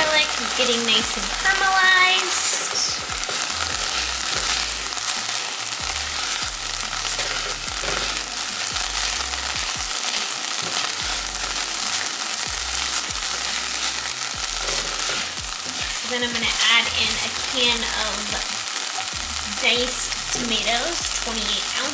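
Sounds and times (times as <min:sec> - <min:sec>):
onions sizzling in a pan: 0:00.0 - 0:21.9.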